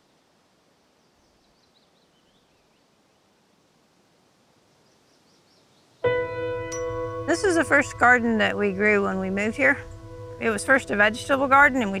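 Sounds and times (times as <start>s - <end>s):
songbird chirping: 0.0s - 3.4s, 4.7s - 12.0s.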